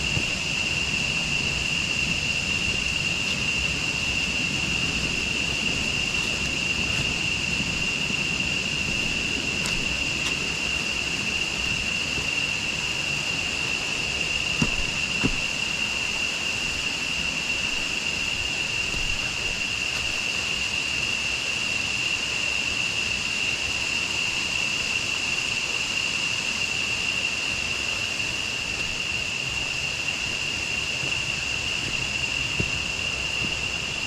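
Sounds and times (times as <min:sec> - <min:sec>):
running river water: 0:00.0 - 0:21.6
insects droning: 0:00.0 - 0:34.0.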